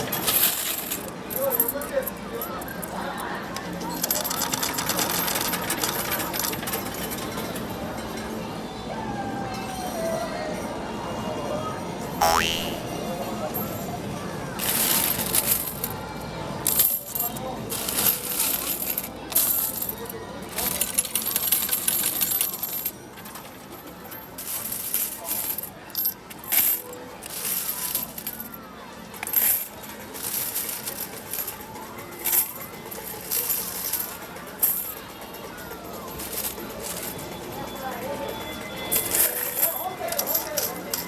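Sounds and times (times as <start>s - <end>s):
metal tokens clattering into machine: 0.0s - 2.9s, 3.6s - 7.6s, 14.6s - 16.0s, 16.6s - 35.3s, 36.0s - 37.6s, 38.8s - 41.0s.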